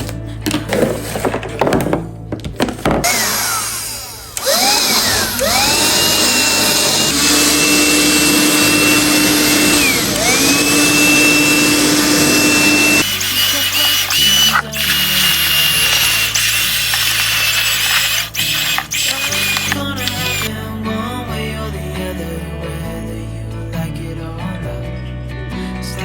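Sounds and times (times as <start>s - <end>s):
electric motor whining: 3.1s - 20.5s.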